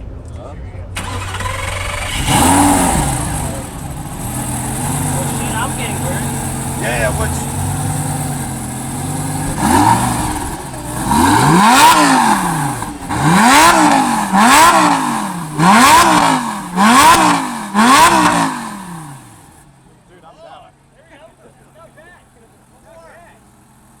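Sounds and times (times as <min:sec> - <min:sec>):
sports car engine revving: 0:00.9 - 0:19.6.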